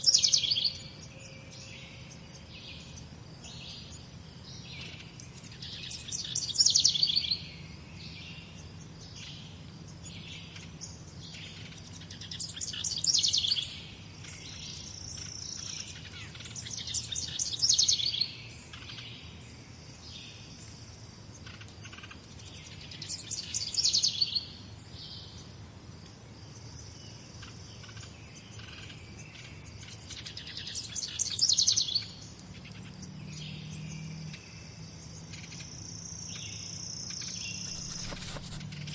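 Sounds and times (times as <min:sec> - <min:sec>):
faint bird calls: 0:37.6 - 0:38.9.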